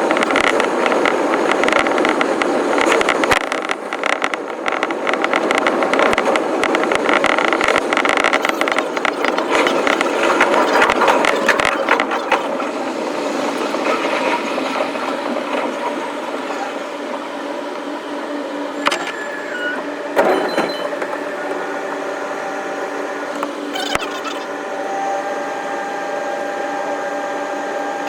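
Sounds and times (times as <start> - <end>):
wheels clattering on track: 0.0 - 22.1
electric train running: 0.0 - 28.0.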